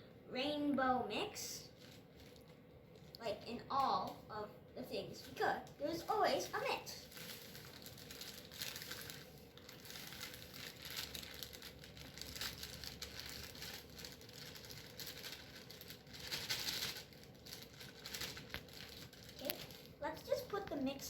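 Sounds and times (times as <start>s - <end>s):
packaging crinkling and rustling: 1.7s - 3.2s, 5.2s - 21.0s.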